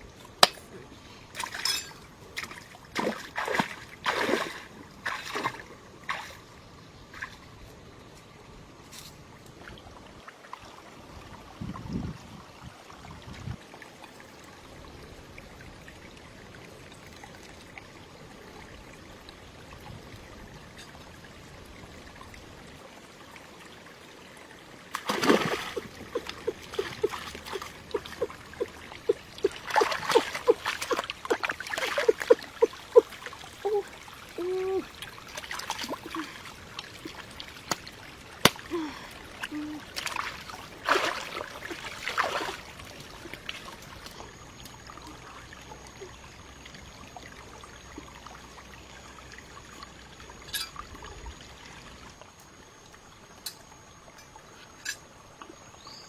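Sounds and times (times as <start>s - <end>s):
splashes and clatters in water: 0.0s - 7.6s, 24.9s - 34.2s, 34.8s - 45.9s, 49.6s - 52.4s
water trickling: 9.3s - 56.0s.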